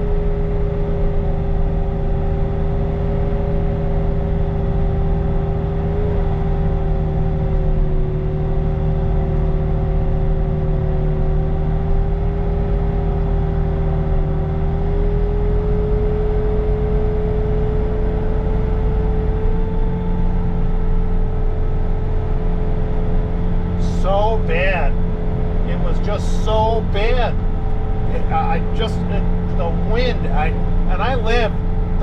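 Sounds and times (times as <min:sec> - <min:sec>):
diesel engine droning: 0:00.0 - 0:32.0
snow blower whine: 0:16.2 - 0:32.0.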